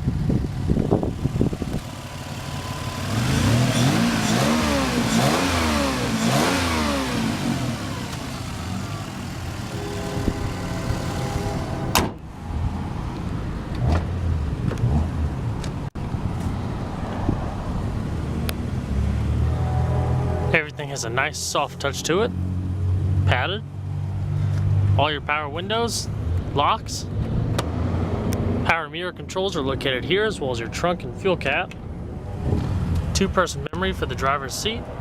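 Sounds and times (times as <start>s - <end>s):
car engine revving: 0.4s - 15.6s.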